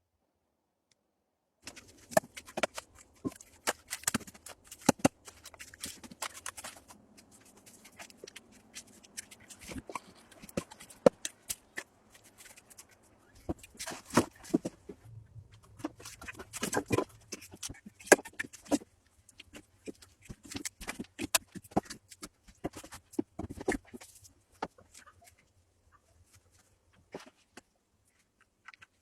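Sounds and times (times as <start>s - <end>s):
hands handling objects: 1.6s - 29.0s.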